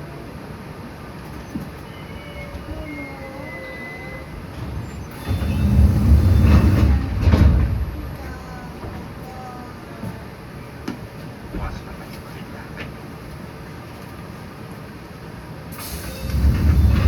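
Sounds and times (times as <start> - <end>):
electric train running: 1.2 - 8.6, 15.8 - 17.0
faint whining tones: 1.2 - 10.3.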